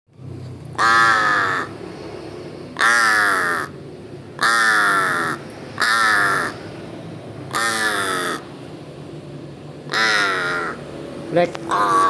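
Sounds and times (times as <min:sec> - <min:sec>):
large bird harsh calls: 0:00.8 - 0:01.8, 0:02.7 - 0:03.8, 0:04.4 - 0:06.8, 0:07.5 - 0:08.6, 0:09.9 - 0:10.9, 0:11.6 - 0:12.0.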